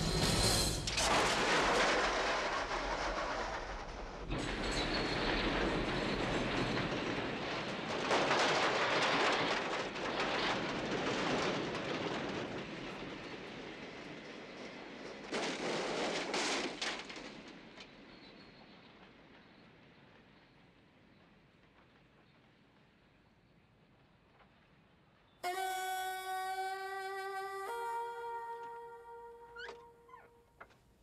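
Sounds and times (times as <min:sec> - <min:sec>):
train rumbling on rails: 0:00.0 - 0:16.4.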